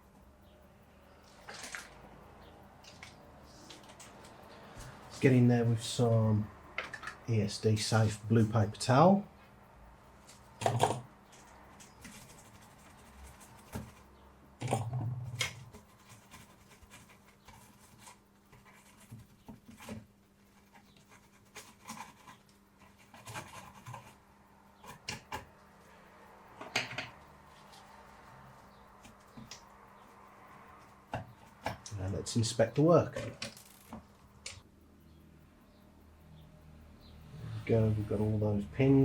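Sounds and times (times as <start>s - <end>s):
paper towel scratching circuit board: 10.3s - 25.6s.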